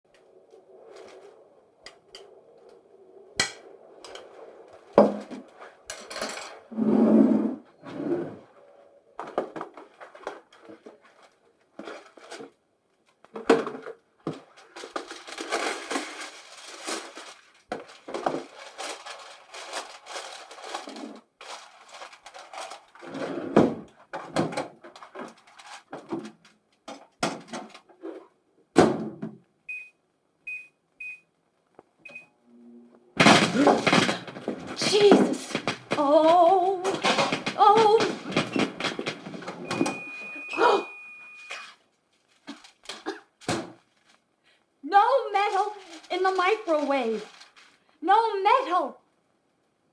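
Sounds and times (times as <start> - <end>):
rustling: 0.1 - 13.3, 14.2 - 28.3, 32.9 - 48.0
microwave keypad beeps: 29.7 - 31.2, 32.1 - 32.3, 39.6 - 41.7.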